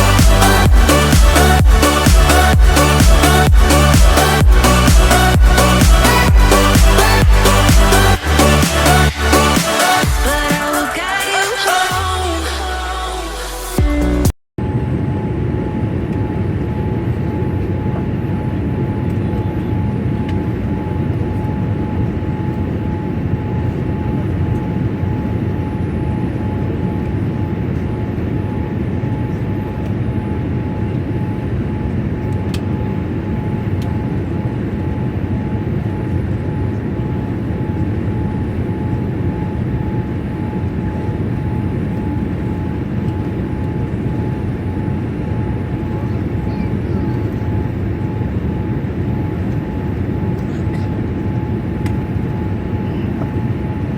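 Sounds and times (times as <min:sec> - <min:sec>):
thin steady whine: 0:00.0 - 0:53.9
airplane cabin airflow and engine hum: 0:14.6 - 0:53.9.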